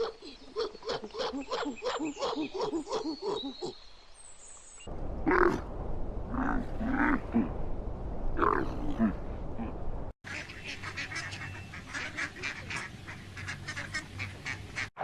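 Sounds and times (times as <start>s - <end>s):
animal calls: 0.0s - 3.8s, 5.3s - 5.7s.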